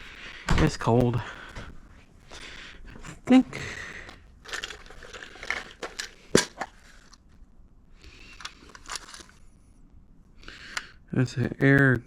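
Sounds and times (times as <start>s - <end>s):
rummaging through tools: 2.8s - 7.2s, 8.1s - 9.4s.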